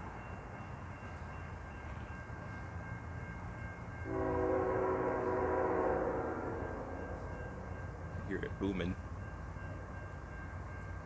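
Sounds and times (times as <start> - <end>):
crossing warning bell tones: 0.0 - 11.0
low rumble of train: 0.0 - 11.0
locomotive horn chord: 4.0 - 7.7.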